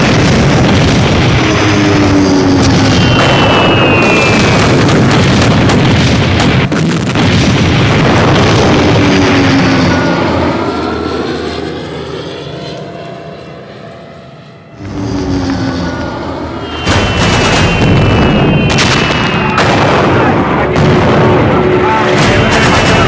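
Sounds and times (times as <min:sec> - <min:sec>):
propeller aircraft flying overhead: 0:00.0 - 0:23.0
high whistling tones: 0:02.9 - 0:04.6, 0:14.8 - 0:19.6.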